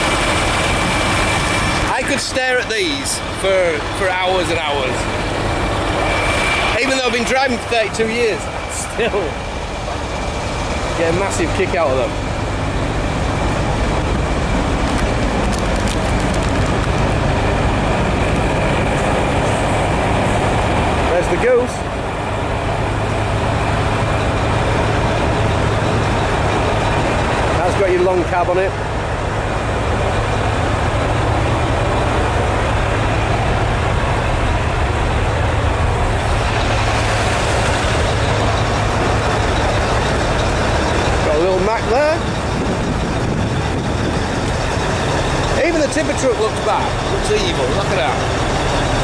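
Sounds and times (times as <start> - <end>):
thin high whine: 0.0 - 15.3
diesel trucks rumbling: 0.0 - 49.0.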